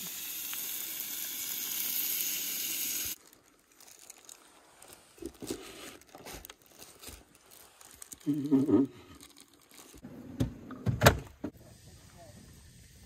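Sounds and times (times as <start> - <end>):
food sizzling in a pan: 0.0 - 3.2
crinkling: 3.2 - 10.1.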